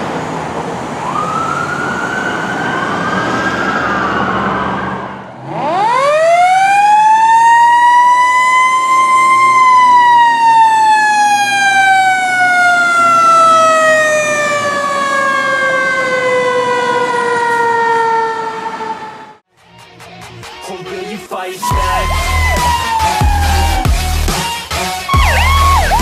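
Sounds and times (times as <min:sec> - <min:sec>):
wailing sirens: 0:00.0 - 0:19.4, 0:21.6 - 0:26.0.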